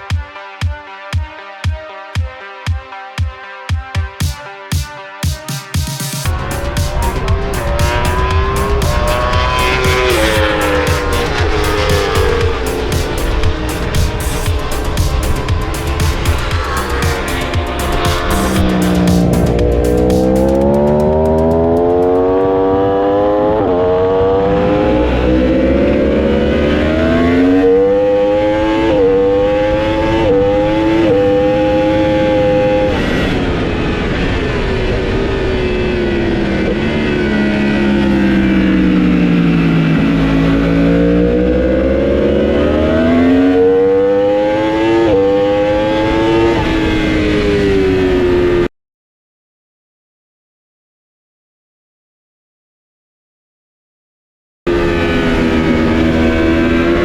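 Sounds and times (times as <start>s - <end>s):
motorcycle engine revving: 6.2s - 34.2s, 35.6s - 48.7s, 54.7s - 57.0s.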